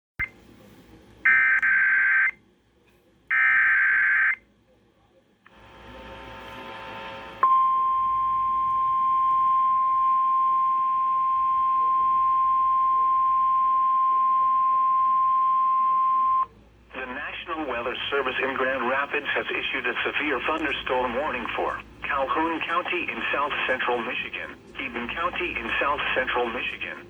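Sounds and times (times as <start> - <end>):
radio announcer speaking: 16.9 - 27.0.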